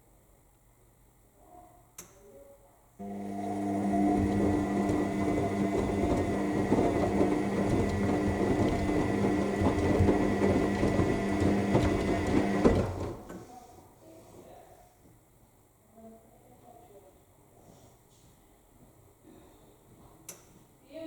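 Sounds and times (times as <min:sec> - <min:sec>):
washing machine drum turning: 0:03.0 - 0:13.3.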